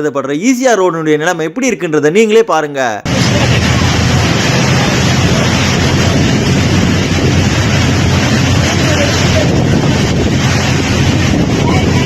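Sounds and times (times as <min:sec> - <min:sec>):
floodwater rushing: 0:03.0 - 0:12.0
wind buffeting microphone: 0:03.1 - 0:12.0.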